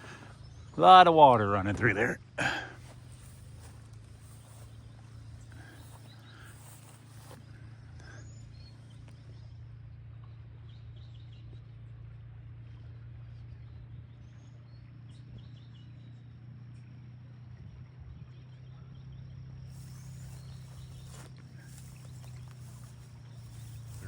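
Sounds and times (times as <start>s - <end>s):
faint bird chirps: 3.1s - 11.7s, 17.3s - 24.0s.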